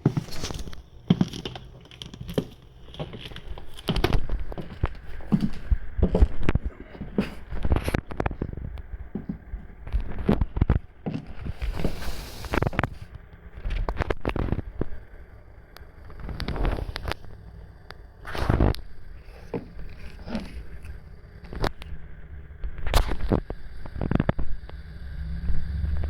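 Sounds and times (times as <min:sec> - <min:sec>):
sandal footsteps clunking: 0:00.0 - 0:12.0
short scraping hiss: 0:11.7 - 0:12.7.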